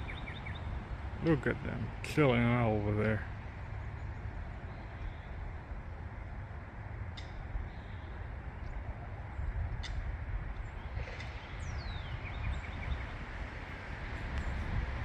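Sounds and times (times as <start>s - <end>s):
bird chirps: 0.0s - 0.8s, 10.6s - 13.2s
road traffic rumble: 0.0s - 15.0s.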